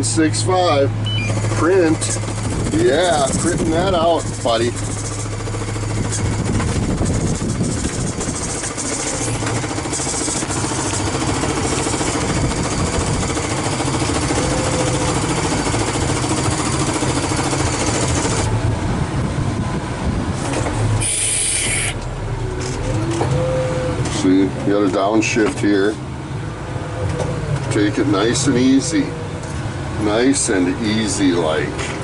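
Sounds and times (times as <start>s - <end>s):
truck diesel engine running: 0.0s - 32.0s
air hissing: 21.0s - 22.0s.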